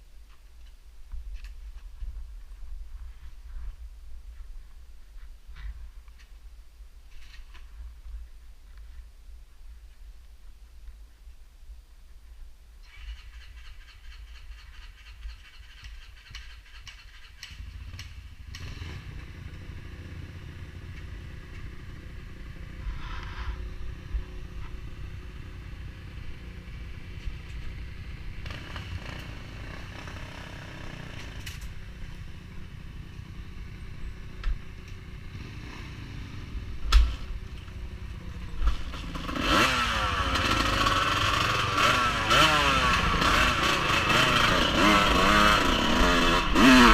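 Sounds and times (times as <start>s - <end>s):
off-road vehicle engine revving: 14.5s - 24.4s, 28.1s - 32.5s, 33.2s - 46.9s.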